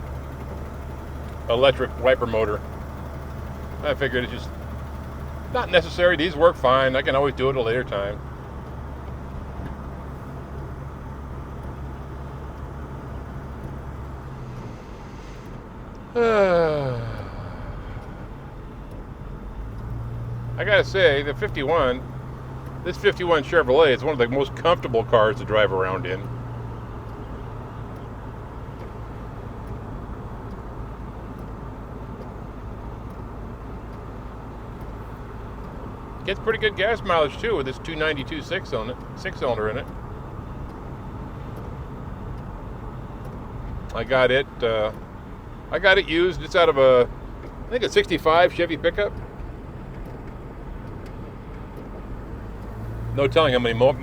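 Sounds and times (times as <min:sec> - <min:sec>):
car engine humming: 0:00.0 - 0:54.0
road noise: 0:00.0 - 0:54.0.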